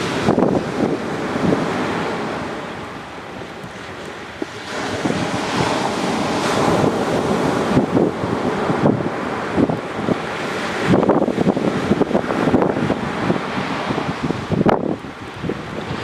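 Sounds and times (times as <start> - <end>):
waves washing onto beach: 0.0 - 16.0
wind buffeting microphone: 0.0 - 16.0.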